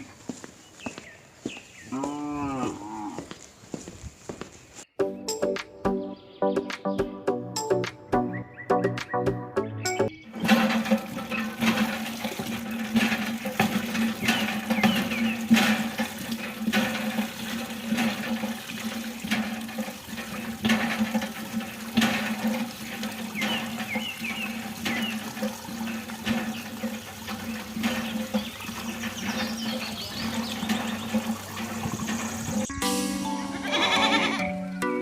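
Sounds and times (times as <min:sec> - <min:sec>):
water gushing and splashing: 0:10.3 - 0:32.7.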